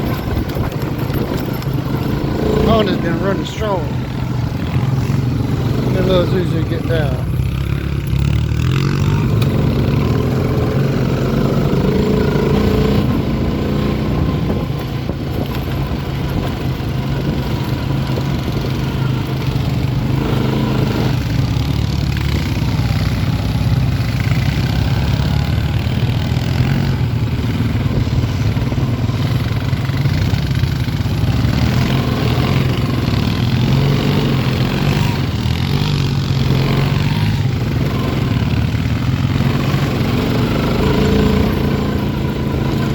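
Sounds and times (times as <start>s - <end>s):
atv engine running: 0.0s - 42.9s
terrain noise: 0.0s - 42.9s.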